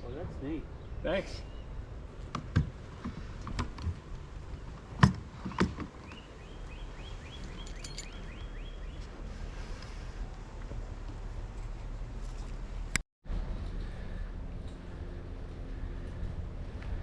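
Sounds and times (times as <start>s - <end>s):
low steady rumble: 9.2s - 17.0s.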